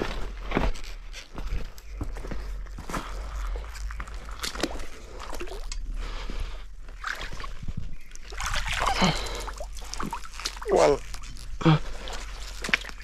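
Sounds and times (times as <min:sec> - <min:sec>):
footsteps on wet ground: 0:00.0 - 0:13.0
wet squelches and clicks: 0:03.2 - 0:05.9, 0:06.9 - 0:13.0.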